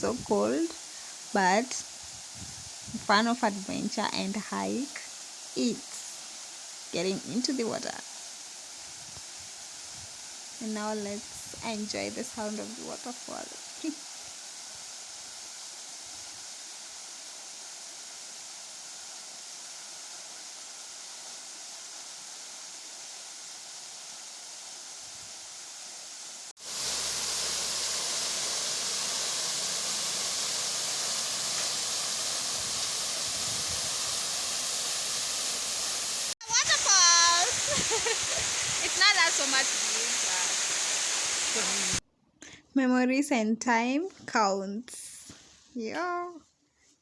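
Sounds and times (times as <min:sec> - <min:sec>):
waterfall rushing: 0:26.6 - 0:42.0.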